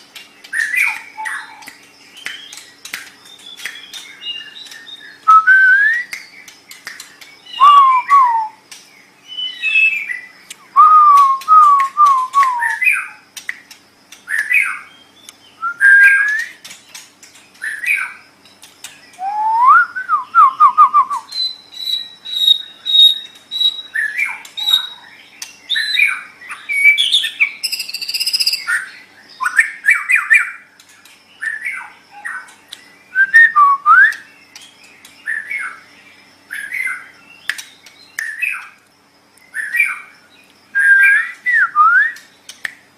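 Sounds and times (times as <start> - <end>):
bird singing whistled phrases: 0.5 - 2.6, 3.2 - 6.5, 7.4 - 8.6, 9.2 - 13.2, 14.3 - 16.6, 19.1 - 30.6, 33.0 - 34.4, 40.7 - 42.3.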